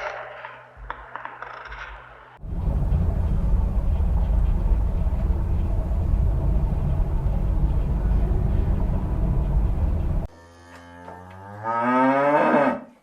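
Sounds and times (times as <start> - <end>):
loud low rumble: 2.4 - 10.3.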